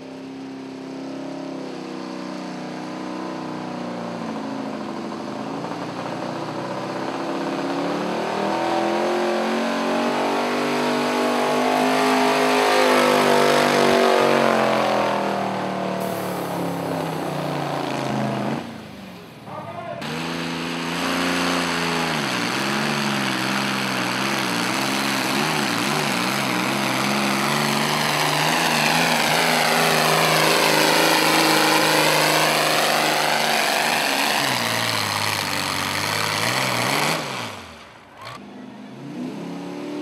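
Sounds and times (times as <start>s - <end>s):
vehicle engine running under load: 0.0s - 39.4s.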